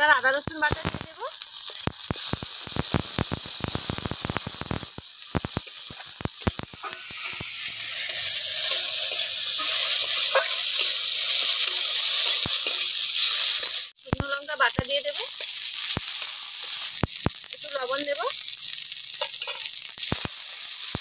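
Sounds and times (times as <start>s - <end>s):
spice paste sizzling in oil: 0.0s - 21.0s
metal spatula scraping pan: 6.8s - 13.9s.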